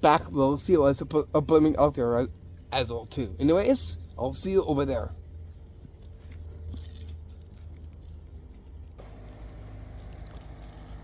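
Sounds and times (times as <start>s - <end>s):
low steady rumble: 0.0s - 11.0s
jingling and rustling of walking: 1.7s - 11.0s
light clinks: 6.0s - 11.0s.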